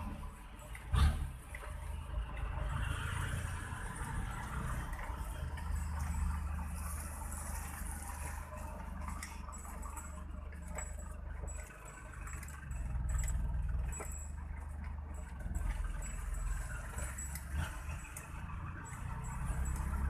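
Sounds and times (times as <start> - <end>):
engine and road noise rumble: 0.0 - 20.0.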